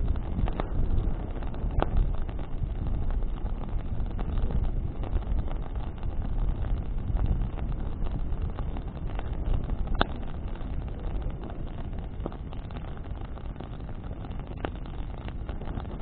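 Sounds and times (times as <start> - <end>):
wind buffeting the microphone: 0.0 - 16.0
wood crackling and popping: 0.0 - 16.0.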